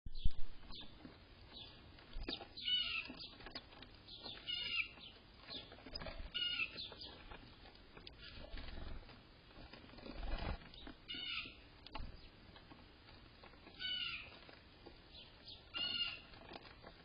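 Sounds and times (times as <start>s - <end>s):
faint rustling: 0.5s - 17.0s
bird calling: 1.6s - 7.3s, 11.1s - 11.6s, 13.7s - 14.4s, 15.1s - 16.4s.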